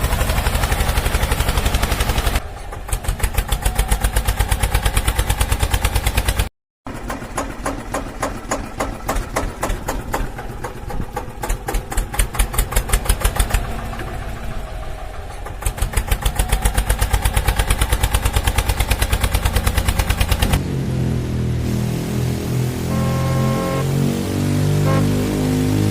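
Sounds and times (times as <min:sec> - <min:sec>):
tractor engine chugging: 0:00.0 - 0:20.6.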